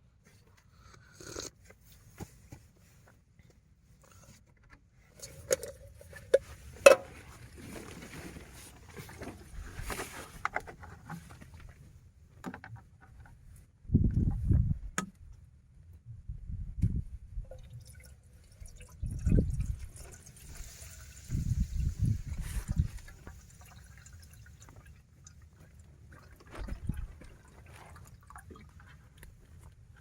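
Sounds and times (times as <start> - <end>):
rustling: 5.1 - 12.0
wind buffeting microphone: 13.8 - 15.0, 16.1 - 17.6, 19.0 - 23.2, 26.6 - 27.3.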